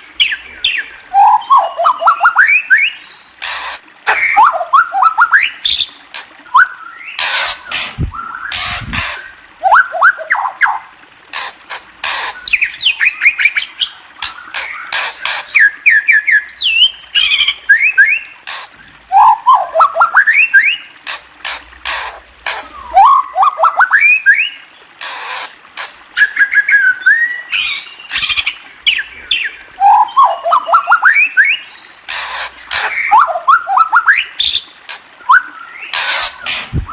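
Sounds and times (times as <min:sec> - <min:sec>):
bird chattering squawks: 0:03.4 - 0:05.9, 0:32.1 - 0:34.6, 0:35.8 - 0:36.8
songbird whistling notes: 0:15.6 - 0:18.3, 0:26.2 - 0:31.7, 0:33.0 - 0:36.9.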